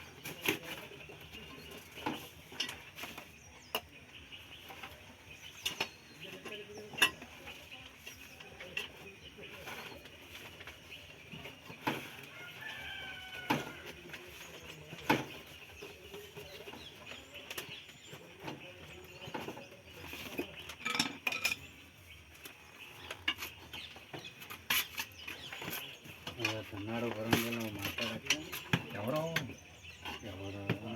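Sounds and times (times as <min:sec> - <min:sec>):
small metal objects knocking: 0:20.6 - 0:21.8.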